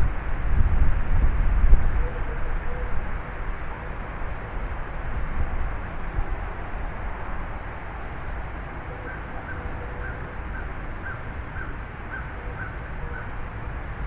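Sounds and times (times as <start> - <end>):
rain: 0.0 - 14.0
wind: 0.0 - 14.0
bird calling: 2.0 - 4.2, 8.8 - 13.5.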